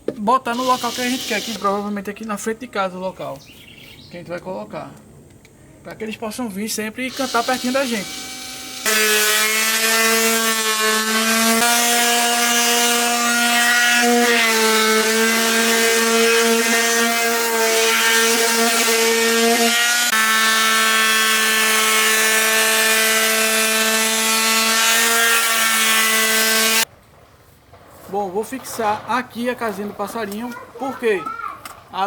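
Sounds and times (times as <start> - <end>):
power tool motor whining: 0.5 - 2.1, 7.1 - 26.9.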